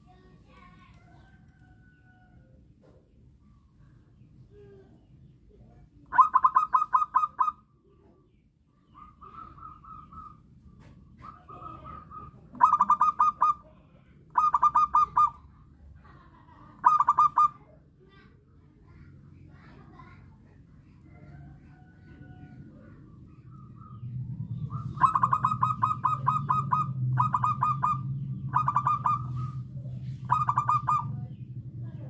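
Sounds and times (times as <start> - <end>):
dove cooing: 6.1 - 7.6, 8.9 - 10.5, 11.2 - 15.5, 16.8 - 17.6, 21.1 - 32.0.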